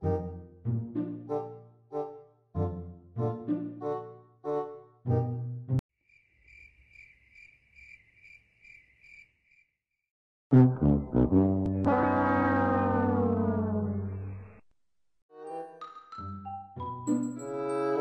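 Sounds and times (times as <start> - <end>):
brass-led background music: 0.0 - 5.8, 10.5 - 14.2
cricket chirping: 6.0 - 9.7.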